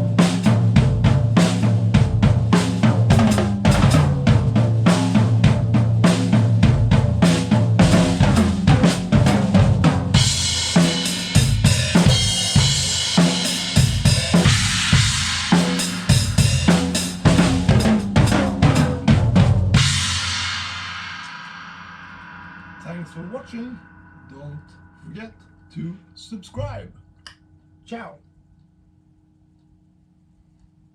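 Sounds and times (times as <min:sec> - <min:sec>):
snare drum: 0:00.0 - 0:21.6
bass drum: 0:00.0 - 0:27.0
cymbals: 0:00.0 - 0:27.2
cymbal crash ringing: 0:10.1 - 0:19.0, 0:19.8 - 0:26.6.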